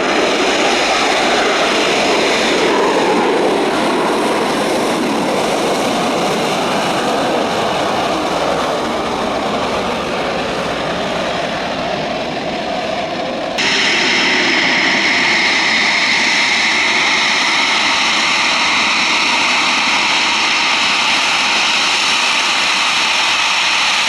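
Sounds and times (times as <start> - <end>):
jet engine noise: 0.0 - 24.0.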